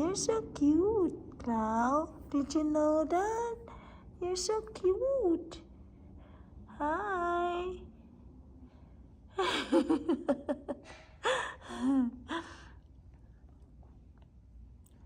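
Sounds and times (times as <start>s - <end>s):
person gasping and giggling: 9.4s - 12.8s.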